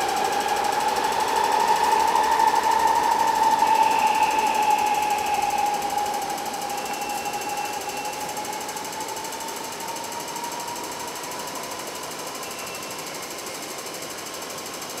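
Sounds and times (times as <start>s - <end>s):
faint rising whine: 0.0s - 14.9s
train running through station: 0.0s - 15.0s.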